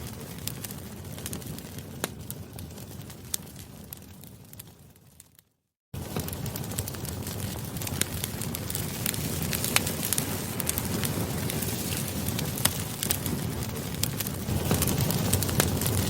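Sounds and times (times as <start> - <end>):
rush of flames: 0.0 - 5.4, 6.0 - 16.0
burning wood crackling and popping: 0.0 - 16.0.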